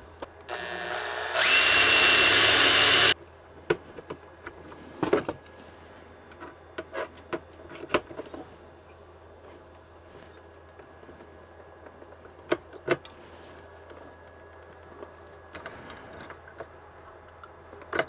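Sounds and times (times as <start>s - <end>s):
electric drill whining: 0.5s - 3.2s.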